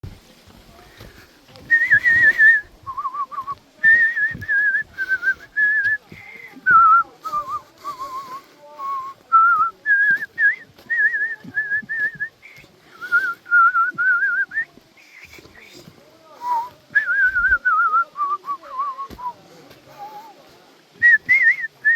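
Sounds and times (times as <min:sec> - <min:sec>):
person whistling a slow tune: 0:01.7 - 0:06.0, 0:06.7 - 0:12.3, 0:13.0 - 0:14.7, 0:21.0 - 0:21.9.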